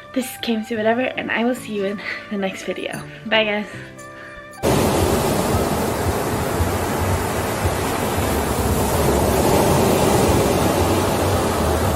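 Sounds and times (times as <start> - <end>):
loud rushing noise: 4.6 - 11.9.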